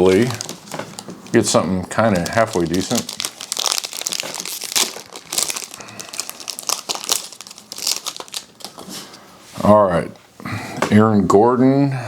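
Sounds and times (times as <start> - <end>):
plastic wrapper crinkling and tearing: 0.0 - 8.9.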